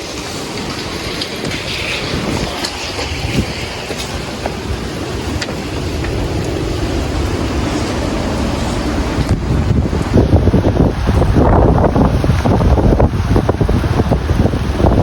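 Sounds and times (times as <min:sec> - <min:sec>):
sharp ticks and knocks: 0:00.0 - 0:06.6
storm wind gusting: 0:00.0 - 0:15.0
wind buffeting microphone: 0:00.0 - 0:15.0.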